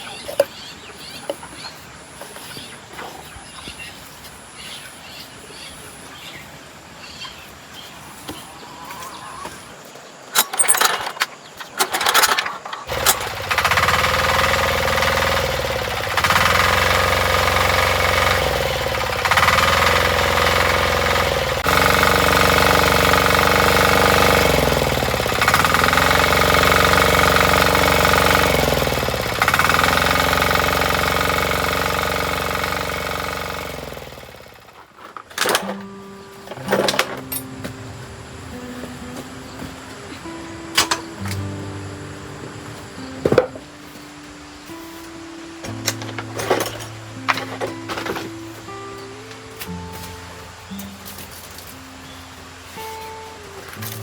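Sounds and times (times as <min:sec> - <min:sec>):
tiller engine running: 0:10.4 - 0:43.6, 0:45.6 - 0:51.8.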